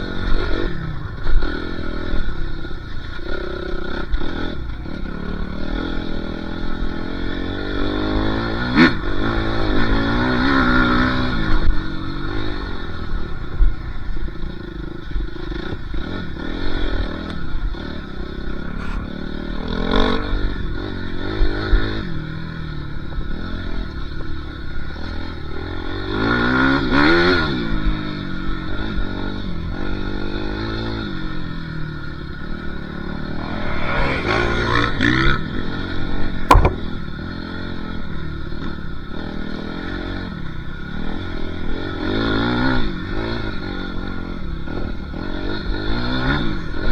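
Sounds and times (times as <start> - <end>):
dirt bike engine revving: 33.2 - 35.6
sharp knock: 33.4 - 35.3, 36.5 - 36.9
rattling and scraping: 36.5 - 36.9.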